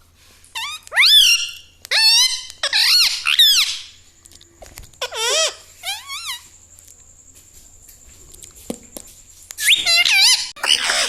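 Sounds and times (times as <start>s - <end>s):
parrot calling: 0.5s - 4.0s, 5.0s - 6.5s, 9.6s - 11.0s.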